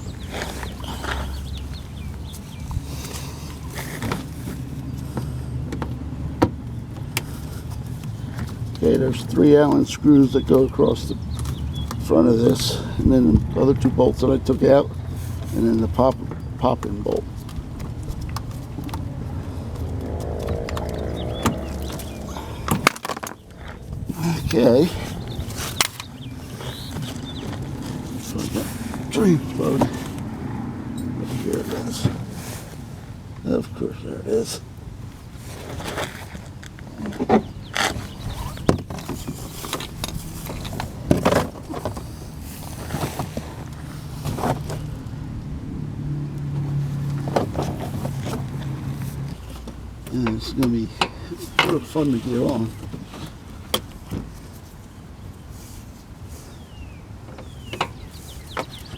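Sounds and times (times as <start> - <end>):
steady low rumble: 11.0 - 31.0
steady low hum: 14.8 - 31.0.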